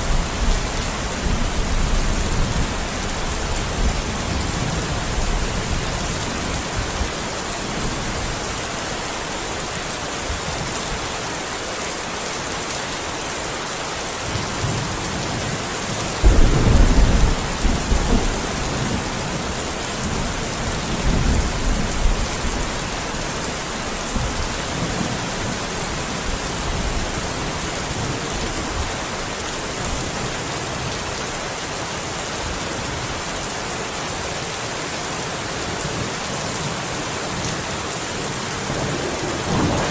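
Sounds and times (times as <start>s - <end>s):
heavy rain falling: 0.0s - 39.9s
thunder rumbling: 16.2s - 28.1s, 38.6s - 39.9s.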